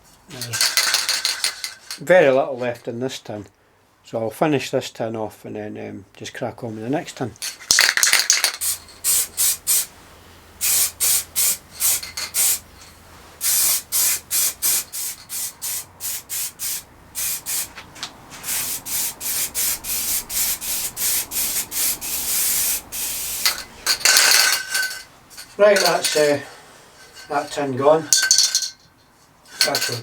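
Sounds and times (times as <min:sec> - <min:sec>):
spray paint can hissing: 0:07.7 - 0:10.0, 0:10.6 - 0:17.8, 0:18.4 - 0:25.0.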